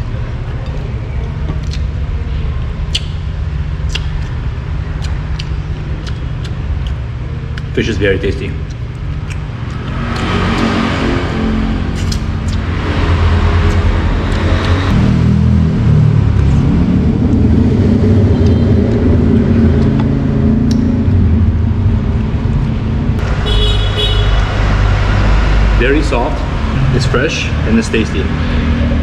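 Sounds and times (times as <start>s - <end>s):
street traffic: 0.0s - 29.0s
vehicle engine rumbling: 0.0s - 29.0s.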